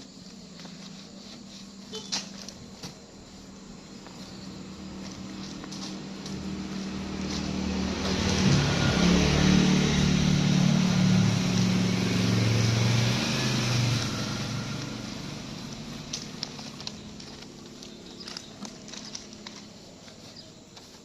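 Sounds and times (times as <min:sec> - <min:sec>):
motor vehicle passing by: 0:03.2 - 0:20.7.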